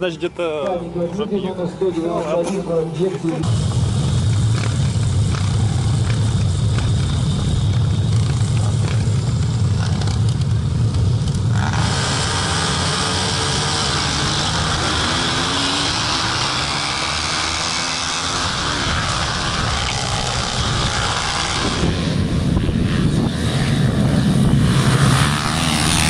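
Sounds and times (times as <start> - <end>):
motorbike engines running: 0.0 - 26.0
motorbike engine revving: 3.4 - 26.0
wind rush on camera: 18.5 - 25.4.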